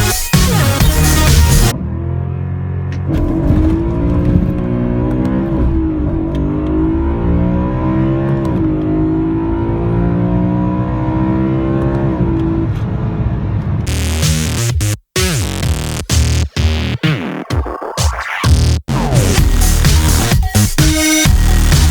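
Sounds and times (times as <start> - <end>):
car engine accelerating through gears: 1.6 - 14.1.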